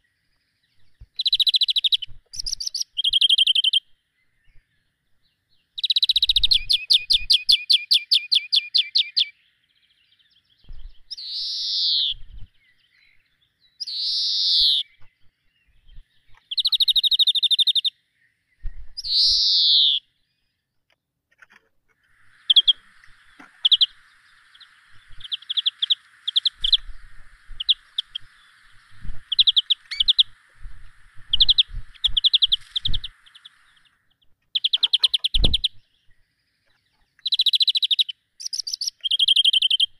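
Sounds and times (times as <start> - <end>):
short bird chirps: 0.0 - 4.9, 5.5 - 20.6, 22.0 - 39.9
downward-sweeping bird calls: 0.0 - 20.7, 22.0 - 39.9
high-pitched bird trills: 11.1 - 12.2, 13.8 - 15.0, 19.0 - 20.1, 22.3 - 30.4, 31.1 - 33.9
steady hiss: 22.0 - 34.2.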